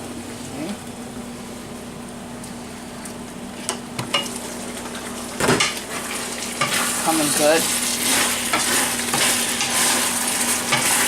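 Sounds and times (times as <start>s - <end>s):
stir-fry sizzling in a wok: 4.1s - 11.0s.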